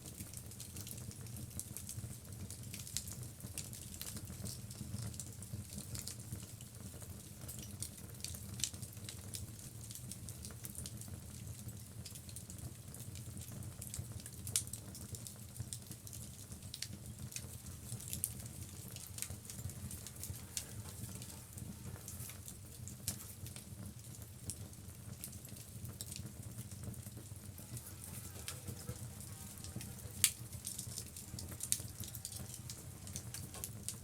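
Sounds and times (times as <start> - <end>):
fire crackles and pops: 0.0 - 34.0
fire flames rumbling: 6.9 - 34.0.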